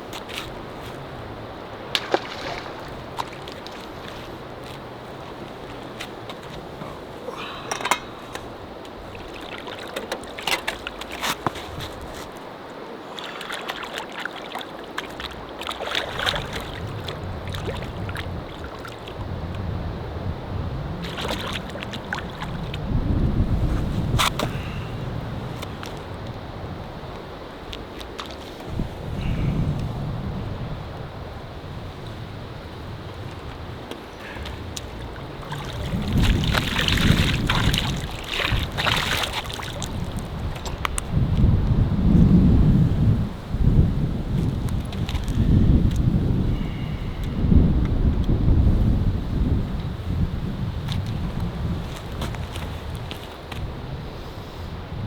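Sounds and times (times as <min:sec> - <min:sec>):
wind buffeting microphone: 0:00.0 - 0:13.0, 0:14.9 - 0:55.0
small water splashes: 0:00.0 - 0:29.9, 0:30.6 - 0:41.7
small waves lapping against canoe: 0:00.0 - 0:55.0.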